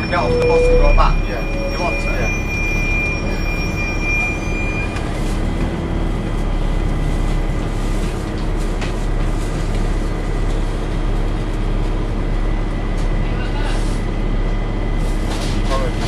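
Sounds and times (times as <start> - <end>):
high steady whine: 0.0 - 5.0
bus engine cooling fan drone: 1.5 - 16.0.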